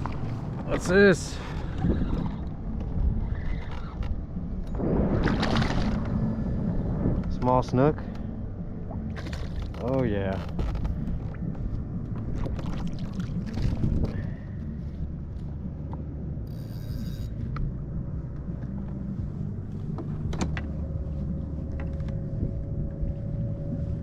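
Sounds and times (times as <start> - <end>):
wind and water rumble: 0.0 - 24.0
fish handling clicks and knocks: 19.9 - 20.8.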